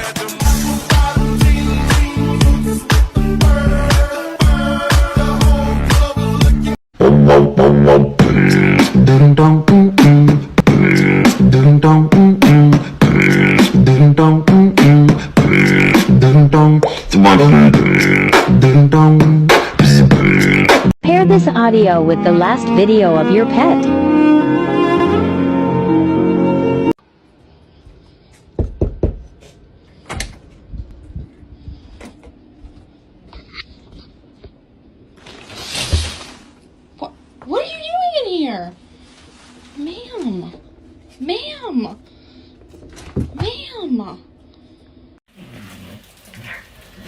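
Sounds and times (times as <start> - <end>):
beatbox vocal music: 0.0 - 20.9
string music: 21.3 - 26.9
sharp knocks and bumps: 28.6 - 29.4.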